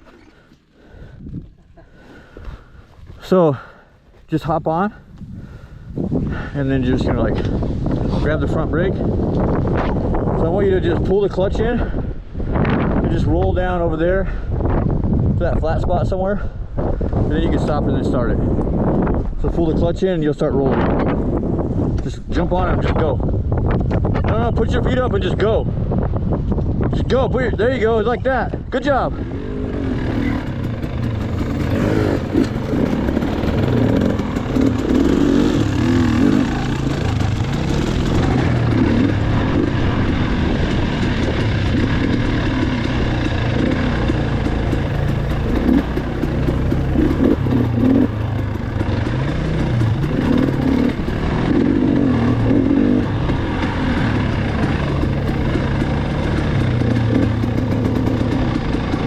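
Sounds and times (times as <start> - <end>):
dirt bike engine revving: 29.1 - 59.0.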